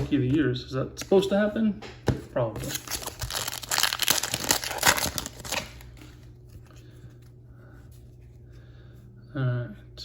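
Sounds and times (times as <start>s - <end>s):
wrapper tearing and crinkling: 2.6s - 6.0s.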